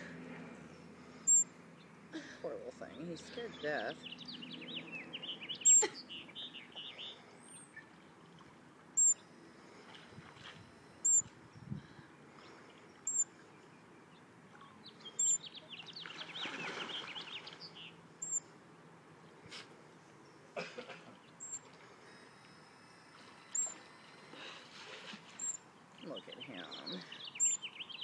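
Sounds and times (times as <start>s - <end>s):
quick twittering birdsong: 0.6s - 2.0s, 2.8s - 9.4s, 10.7s - 18.5s, 19.2s - 22.3s, 23.5s - 23.9s, 25.3s - 28.0s.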